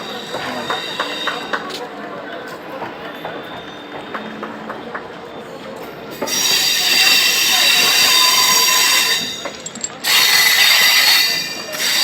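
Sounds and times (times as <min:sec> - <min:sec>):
electric train rushing hiss: 0:00.0 - 0:01.8, 0:06.1 - 0:12.0.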